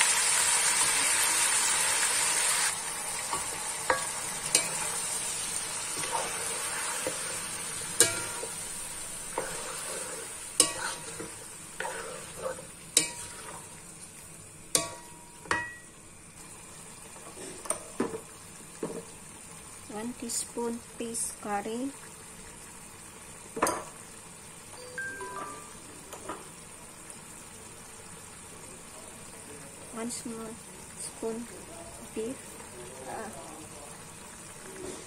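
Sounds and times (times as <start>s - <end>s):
meat sizzling in a wok: 0.0s - 35.0s
wooden spatula scraping a pan: 3.3s - 13.8s.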